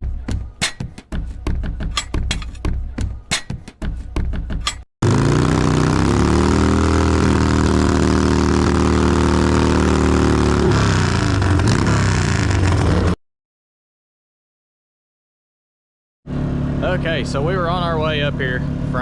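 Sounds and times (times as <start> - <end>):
vehicle engine running: 3.8 - 13.2, 16.3 - 19.0.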